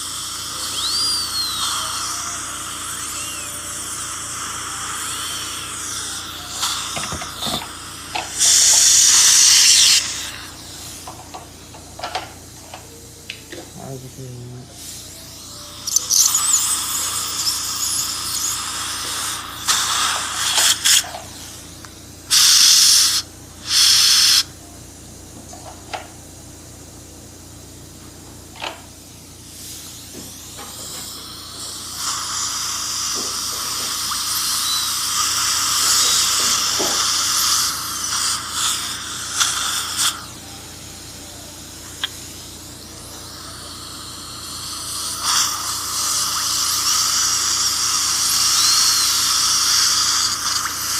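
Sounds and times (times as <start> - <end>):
loud hissing blasts: 0.0 - 11.2, 15.8 - 24.5
dental handpiece and suction: 0.0 - 11.4, 15.4 - 24.5, 30.0 - 40.4, 42.0 - 50.9.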